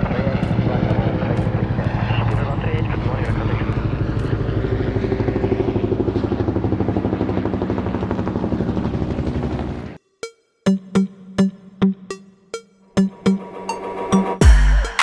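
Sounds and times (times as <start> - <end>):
helicopter rotor chopping: 0.0 - 10.0
electronic drum hits: 14.4 - 15.0.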